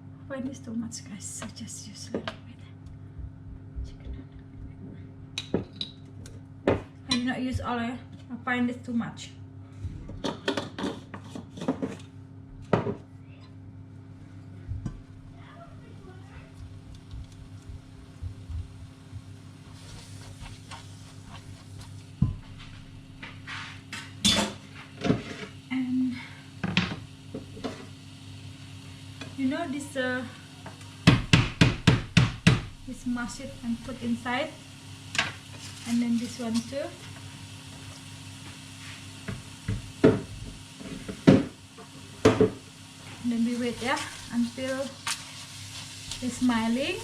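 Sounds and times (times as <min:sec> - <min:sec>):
steady low hum: 0:00.0 - 0:47.0
paste frying quietly: 0:13.9 - 0:47.0
utensil knocking on frying pan: 0:31.0 - 0:32.7.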